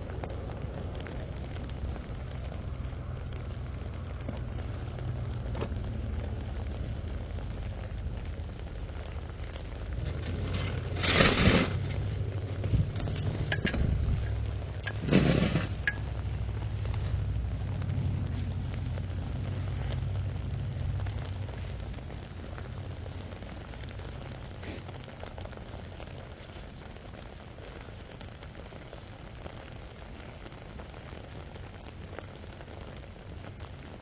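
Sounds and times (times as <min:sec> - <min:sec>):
rushes of noise: 0:00.0 - 0:27.4
low rumble: 0:00.0 - 0:33.9
rain on an umbrella: 0:00.0 - 0:34.0
small clinks: 0:12.9 - 0:16.1.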